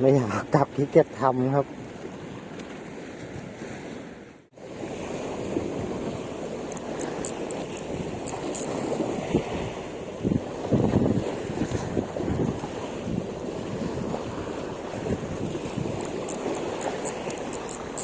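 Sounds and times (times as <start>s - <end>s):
sea waves washing on shore: 1.6s - 18.0s
wind buffeting microphone: 7.7s - 18.0s.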